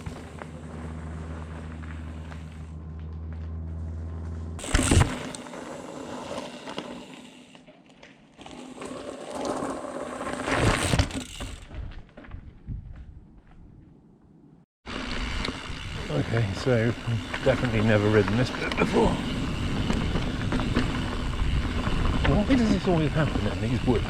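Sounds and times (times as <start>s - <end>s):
bike tyres rattling over ground: 0.0s - 12.6s, 14.9s - 24.0s
bike heavy jolts: 3.9s - 7.8s, 14.9s - 24.0s
freehub ratchet clicking: 14.9s - 16.0s.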